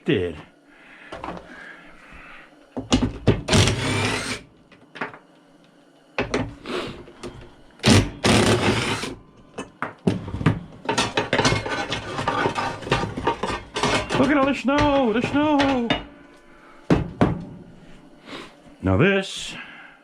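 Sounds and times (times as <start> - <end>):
cordless power driver running: 3.5 - 4.4, 7.8 - 9.2.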